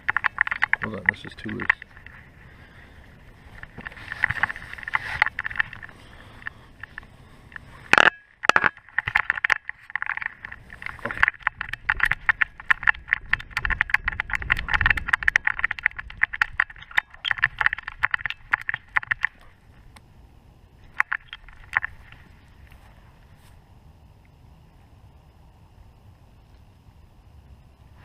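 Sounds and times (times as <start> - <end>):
camera mount rattling: 0.0 - 2.2, 3.6 - 7.0, 7.9 - 19.5, 20.9 - 22.2.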